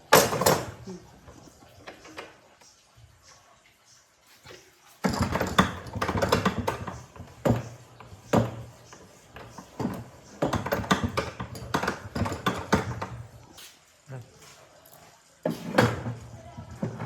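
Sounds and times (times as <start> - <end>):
rapid irregular clicks and knocks: 0.0 - 3.4, 4.4 - 13.6.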